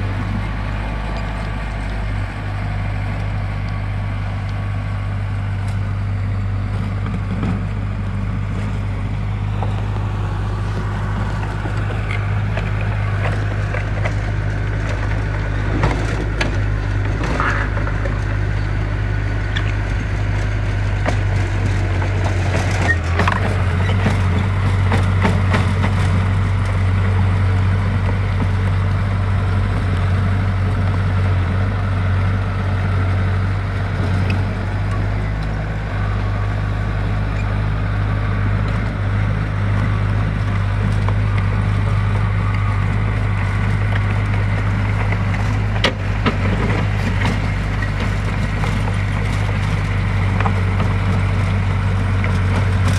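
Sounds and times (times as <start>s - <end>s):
diesel engine under load: 0.0s - 52.9s
dirt and stone clattering: 40.0s - 52.9s.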